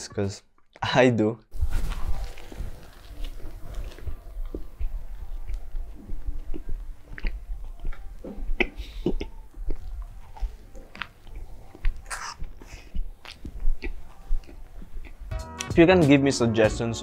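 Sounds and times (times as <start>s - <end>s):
biting into burger: 1.8s - 15.3s
person chewing burger: 1.9s - 15.3s
wet mouth smacks and clicks: 4.0s - 15.3s.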